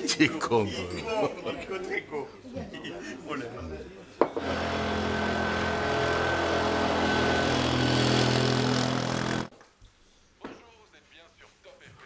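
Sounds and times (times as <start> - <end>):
small vehicle engine running: 4.4 - 9.5.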